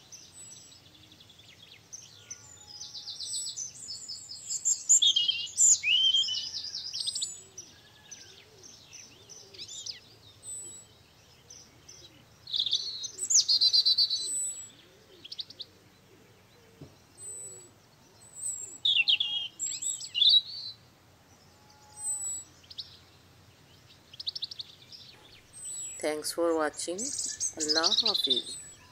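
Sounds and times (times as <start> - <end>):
songbirds chirping and trilling: 0.0 - 28.9.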